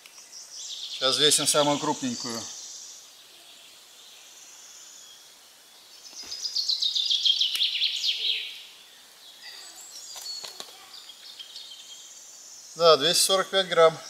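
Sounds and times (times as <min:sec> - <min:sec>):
songbird singing high notes: 0:06.1 - 0:14.0.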